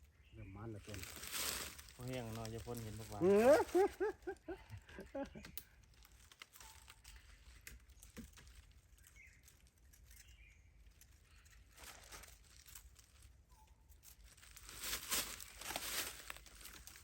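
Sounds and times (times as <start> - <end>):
faint bird chirps: 0.0 - 1.0, 6.6 - 12.4, 13.4 - 14.3
soft rustles and clicks: 0.8 - 17.0.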